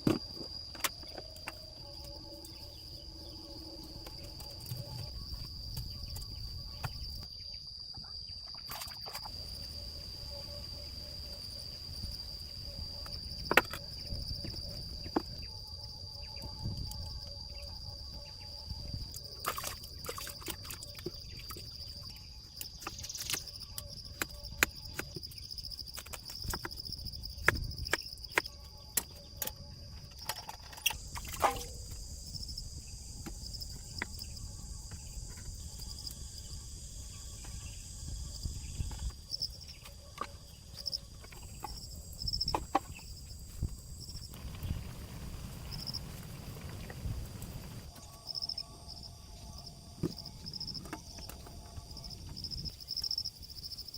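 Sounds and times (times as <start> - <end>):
high insect trill: 0.0 - 53.9.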